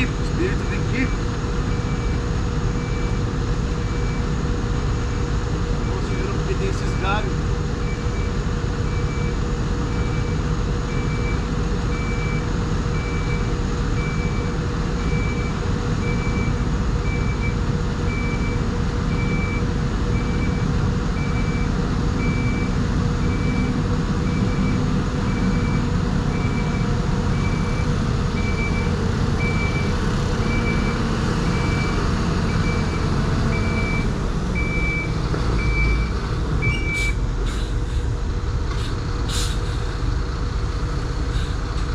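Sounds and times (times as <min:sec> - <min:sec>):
diesel engine running: 0:00.0 - 0:41.9
reversing alarm beeping: 0:07.8 - 0:37.2.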